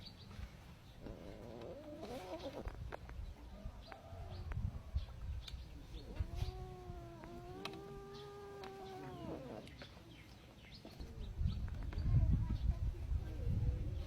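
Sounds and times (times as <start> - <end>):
animal calling: 5.9 - 9.9.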